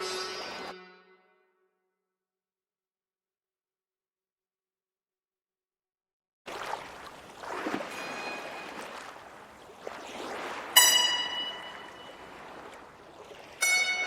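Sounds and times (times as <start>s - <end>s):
rushing water-like noise: 6.5s - 14.0s.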